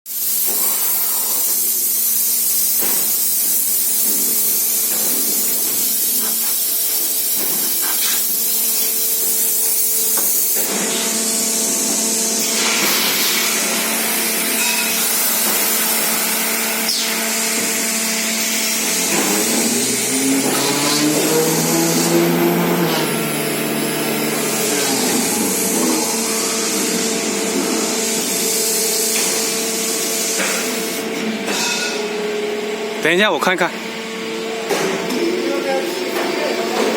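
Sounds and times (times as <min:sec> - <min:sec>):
machine hissing: 0:00.1 - 0:32.7
pitched whine: 0:13.4 - 0:29.0.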